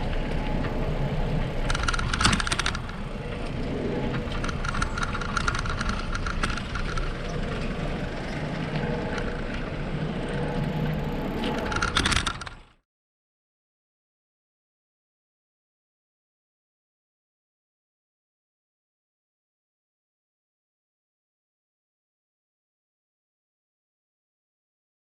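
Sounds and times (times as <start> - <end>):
bicycle tyres rumbling: 0.0 - 12.8
bicycle clicking rattle: 1.5 - 12.8.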